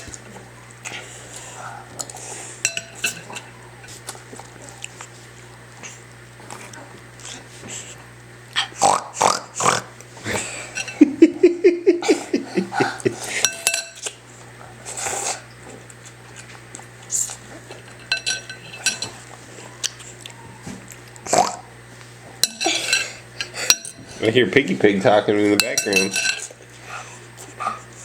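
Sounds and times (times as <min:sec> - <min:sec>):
smacking eating noises: 0:00.0 - 0:28.0
plate and cutlery clinking: 0:02.7 - 0:03.5, 0:10.7 - 0:11.2, 0:13.4 - 0:14.1, 0:17.6 - 0:19.2, 0:22.4 - 0:24.2, 0:25.5 - 0:26.6.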